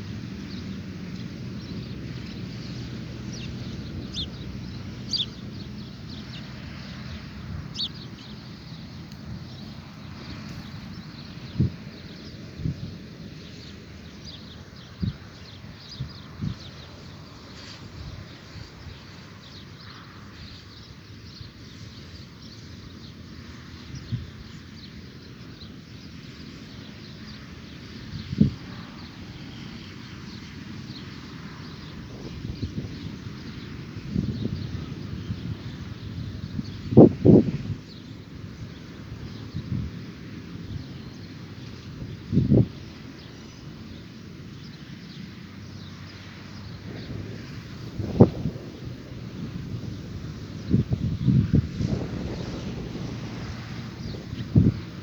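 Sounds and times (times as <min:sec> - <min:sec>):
low outdoor rumble: 0:00.0 - 0:20.3, 0:45.4 - 0:55.0
birds chirping: 0:00.4 - 0:55.0.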